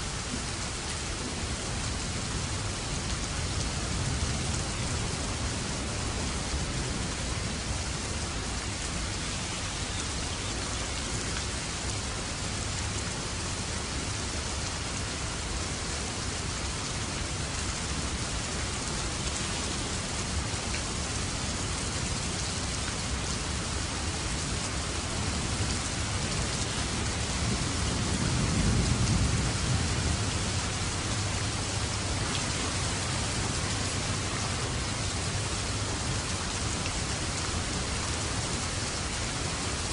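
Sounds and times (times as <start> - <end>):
heavy rain falling: 0.0 - 39.9
thunder rumbling: 27.2 - 31.9.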